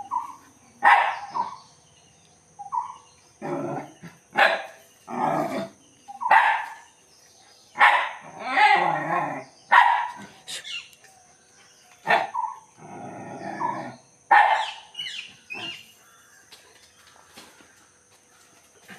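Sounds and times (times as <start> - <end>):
dog barking: 0.8 - 1.6, 4.4 - 4.8, 6.2 - 6.8, 7.8 - 8.8, 9.7 - 10.2, 12.1 - 12.5, 14.3 - 14.8.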